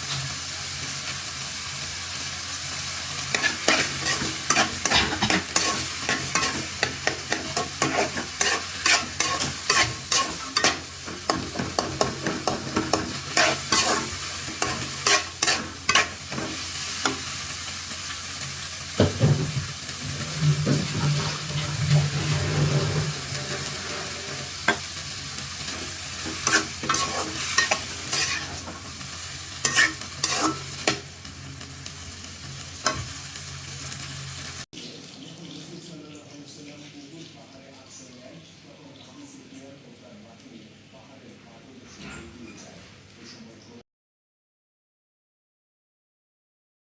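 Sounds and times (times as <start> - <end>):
chickpeas sizzling: 0.0 - 41.6
spoon scraping a pan: 3.2 - 17.5, 18.9 - 31.1, 32.8 - 33.2.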